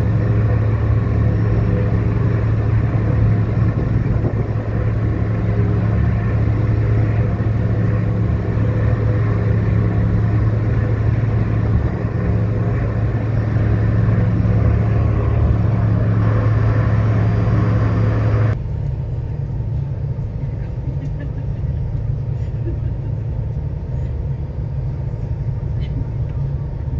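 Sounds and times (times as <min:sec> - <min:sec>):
broad rushing noise: 0:00.0 - 0:18.6
ferry engines droning: 0:00.0 - 0:26.9.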